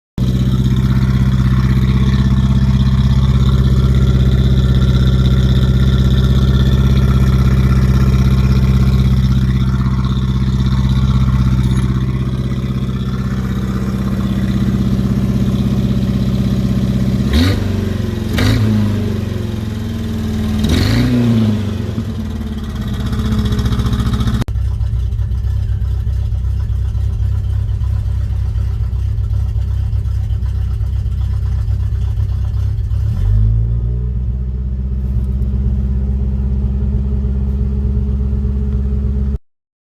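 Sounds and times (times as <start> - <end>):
truck exhaust idling and revving: 0.2 - 39.4.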